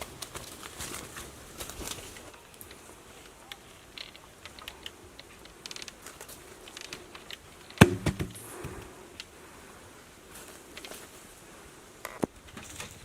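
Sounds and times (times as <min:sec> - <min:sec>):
knocks on wood: 0:07.8 - 0:08.7.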